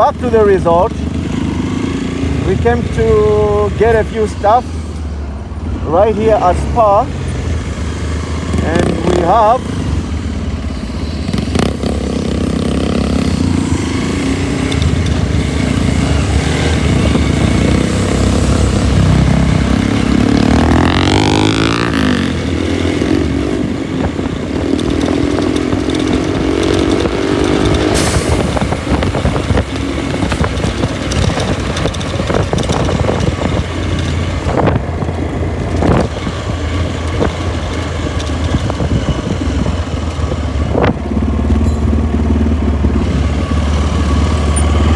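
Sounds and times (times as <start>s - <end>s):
motorcycle engine running: 0.0s - 4.6s, 5.2s - 44.9s
wind rush on microphone: 9.6s - 44.9s.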